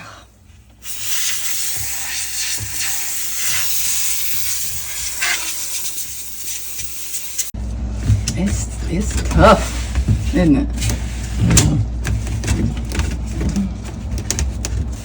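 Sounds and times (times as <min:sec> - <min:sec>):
steam cleaner hissing: 0:00.8 - 0:07.6.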